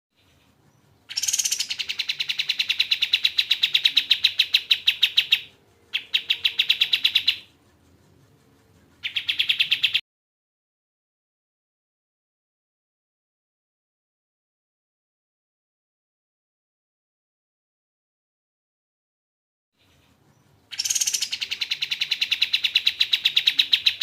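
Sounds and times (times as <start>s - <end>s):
bird calling in fast chips: 1.1s - 7.5s, 9.0s - 10.0s, 20.7s - 24.0s.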